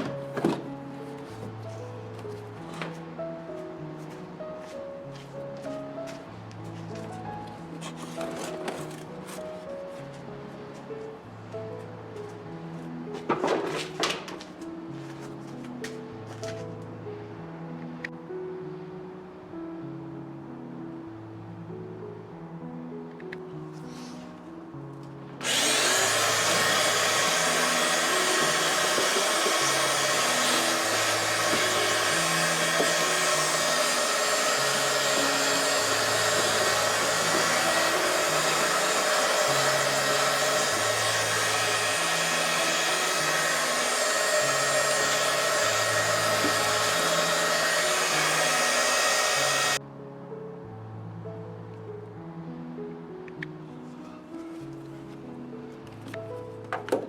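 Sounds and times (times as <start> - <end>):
air tool rushing noise: 25.4 - 49.8.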